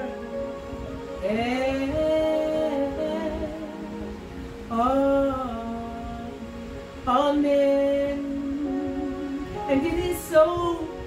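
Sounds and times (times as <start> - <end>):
background music: 0.0 - 11.0
person singing long notes: 0.0 - 11.0.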